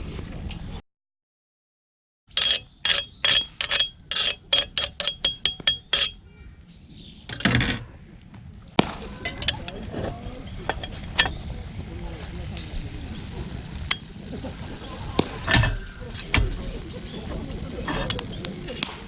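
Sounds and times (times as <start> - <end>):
metal cookware clinking: 2.4 - 6.2, 9.2 - 11.4, 15.4 - 18.9.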